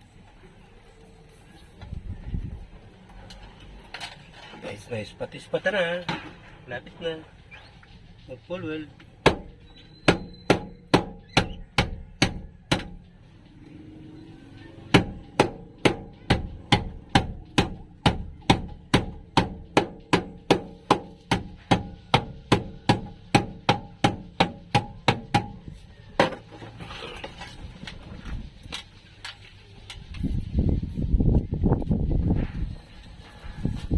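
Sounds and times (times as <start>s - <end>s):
hammer striking sheet metal: 9.2s - 13.1s, 14.9s - 26.4s.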